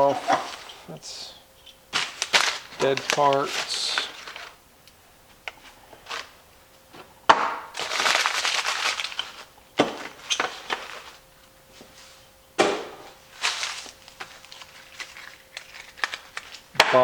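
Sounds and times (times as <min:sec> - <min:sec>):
packaging rustling: 0:00.0 - 0:04.6, 0:05.5 - 0:06.4, 0:07.7 - 0:11.3, 0:13.3 - 0:16.8
knocks on workbench: 0:12.6 - 0:13.1.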